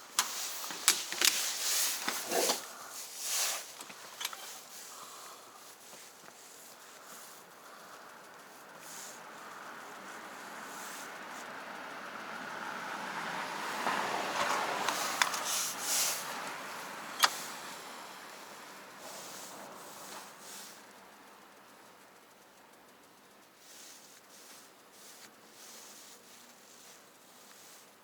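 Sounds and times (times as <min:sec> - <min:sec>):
vehicle passing by: 0:06.8 - 0:21.4
sharp clicks: 0:16.2 - 0:18.4.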